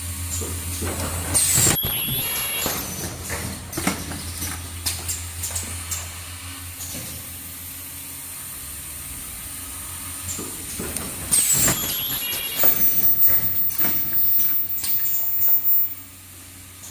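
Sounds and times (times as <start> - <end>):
machine humming: 8.4 - 16.1
mechanical clatter: 10.2 - 16.0
thin high whine: 11.4 - 16.1.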